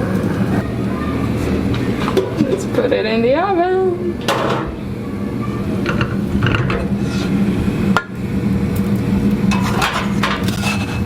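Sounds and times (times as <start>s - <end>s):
light scraping and clatter: 9.5s - 11.0s.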